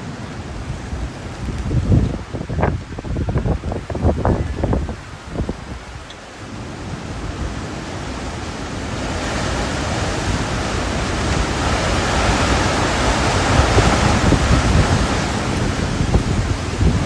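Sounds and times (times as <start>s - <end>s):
hurricane wind gusting: 0.0s - 17.0s
wind buffeting microphone: 0.5s - 6.1s, 9.1s - 17.0s.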